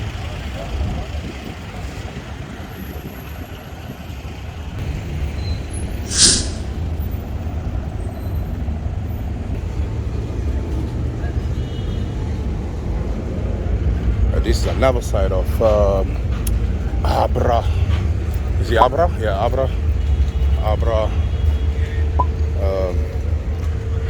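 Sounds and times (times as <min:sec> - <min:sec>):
short sharp hiss: 0:06.1 - 0:06.8.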